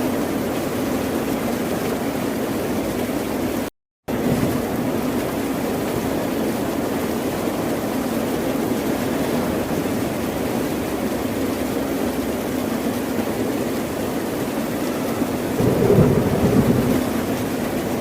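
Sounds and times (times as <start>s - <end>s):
ocean surf washing: 15.5s - 18.0s.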